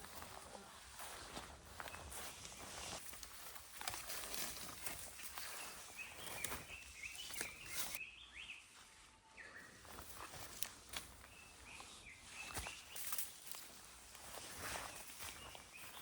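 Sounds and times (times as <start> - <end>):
footsteps on dry leaves: 0.0 - 16.0
small bird chirping: 5.2 - 8.7.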